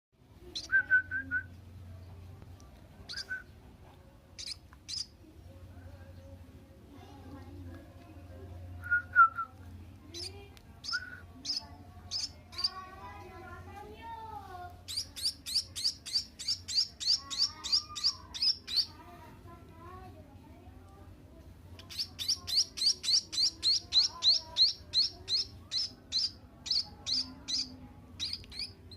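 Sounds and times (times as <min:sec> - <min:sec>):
bird chick chirping: 0:04.4 - 0:05.2, 0:10.1 - 0:12.8, 0:14.8 - 0:19.0, 0:21.8 - 0:28.9
chick begging chirps: 0:21.8 - 0:28.9.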